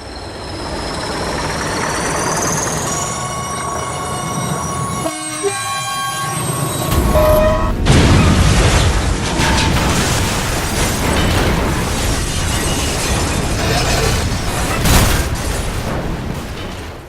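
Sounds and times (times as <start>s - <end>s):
explosion blast: 6.9s - 17.0s
rumbling noise: 6.9s - 17.0s.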